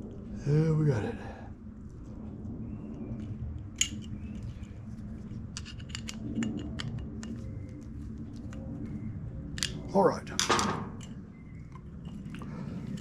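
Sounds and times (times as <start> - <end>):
steady low hum: 0.0 - 13.0
clicks of small metal parts: 5.5 - 7.4, 9.5 - 9.8.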